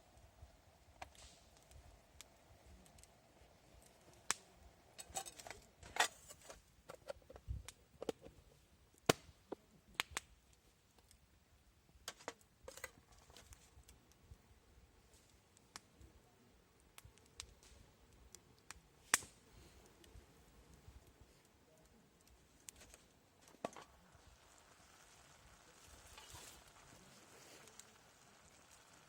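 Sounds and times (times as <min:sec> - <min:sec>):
sharp clicks and light knocks: 0:05.0 - 0:08.4.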